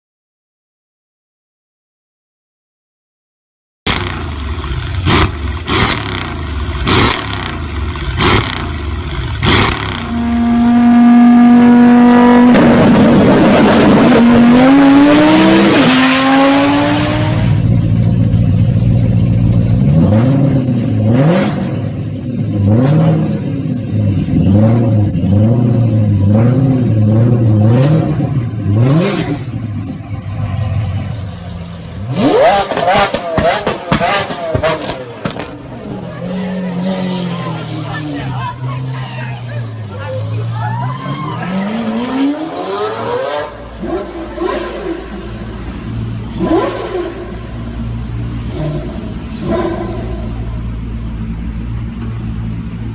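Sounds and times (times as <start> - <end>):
sharp exhaust cracks: 3.9 - 11.1
car engine revving: 3.9 - 52.9.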